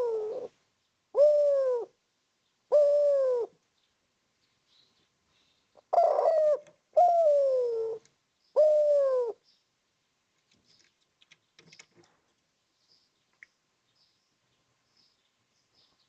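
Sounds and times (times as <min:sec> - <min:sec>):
dove cooing: 0:00.0 - 0:02.0, 0:02.7 - 0:03.6, 0:05.8 - 0:09.4.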